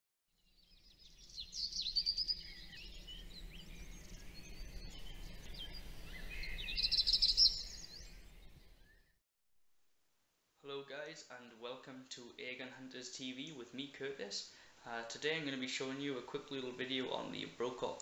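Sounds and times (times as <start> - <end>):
birds singing and chirping: 0.6 - 9.1.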